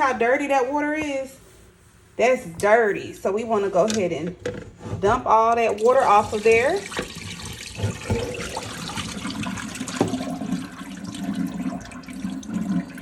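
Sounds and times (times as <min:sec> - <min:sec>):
water splashing into sink: 0:05.6 - 0:13.0.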